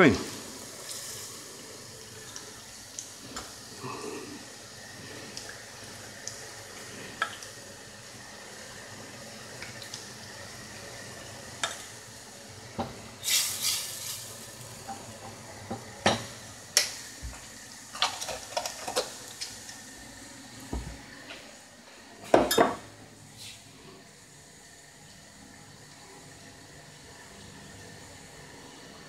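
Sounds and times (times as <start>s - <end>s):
faint sizzle: 0.0s - 29.0s.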